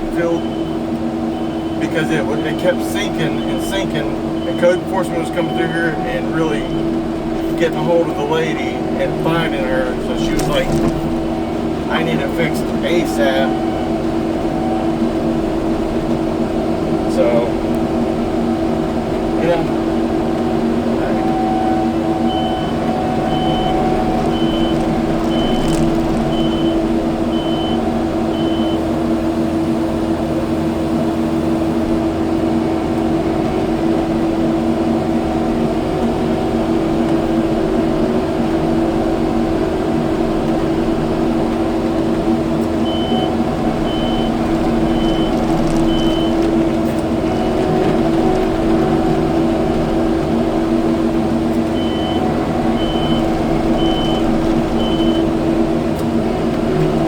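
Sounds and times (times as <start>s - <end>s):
reversing alarm beeping: 0.0s - 7.0s, 7.7s - 15.8s, 20.9s - 29.0s, 42.8s - 46.5s, 51.7s - 55.4s
diesel engine running: 0.0s - 57.0s.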